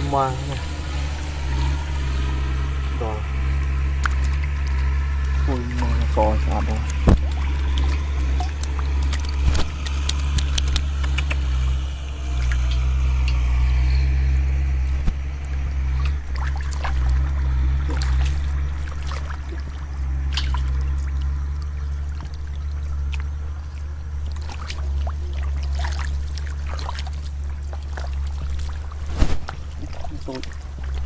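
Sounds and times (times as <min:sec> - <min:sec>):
steady low hum: 0:00.0 - 0:31.0
water trickling and splashing: 0:00.0 - 0:31.0
small clicks: 0:06.8 - 0:13.4.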